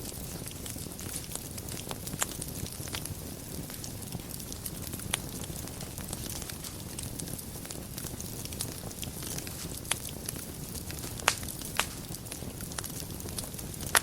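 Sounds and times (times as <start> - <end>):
fire rumbling: 0.0 - 14.0
wood crackling and popping: 0.0 - 14.0.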